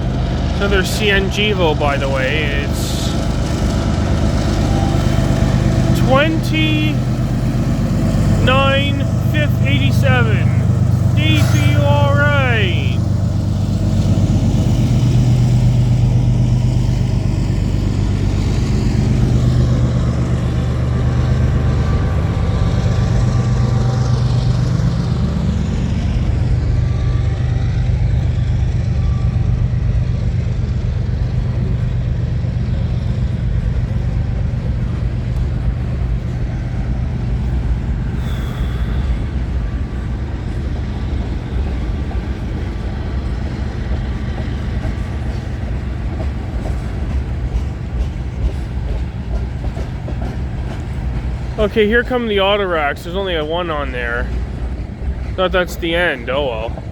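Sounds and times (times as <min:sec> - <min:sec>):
diesel locomotive engine drone: 0:00.0 - 0:56.9
train wheels rolling on rails: 0:40.6 - 0:51.6.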